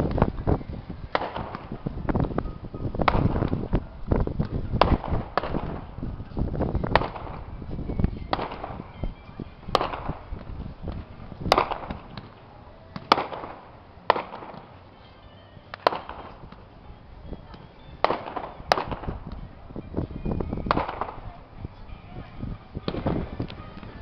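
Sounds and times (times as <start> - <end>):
fireworks bangs echoing: 1.0 - 2.2, 3.0 - 3.8, 4.4 - 9.0, 9.7 - 14.8, 15.7 - 16.6, 18.0 - 19.4, 20.6 - 21.4, 22.8 - 23.5.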